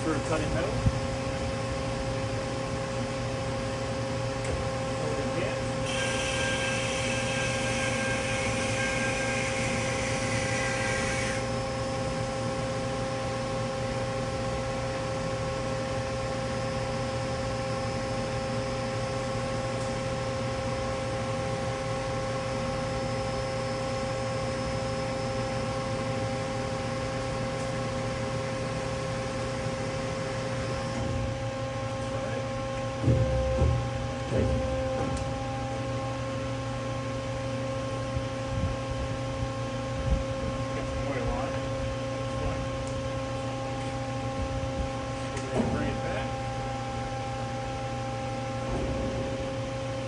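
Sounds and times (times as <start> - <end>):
high machine whine: 0.0 - 50.0
band saw running: 5.8 - 11.5.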